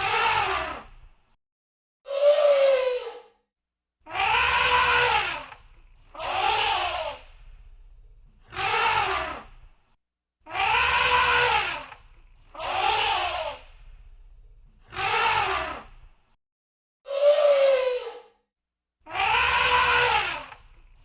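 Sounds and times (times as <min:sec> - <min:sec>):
elephant trumpeting: 0:04.1 - 0:07.2, 0:10.5 - 0:12.0, 0:19.1 - 0:20.6
low rumble: 0:07.2 - 0:08.4, 0:13.7 - 0:14.8.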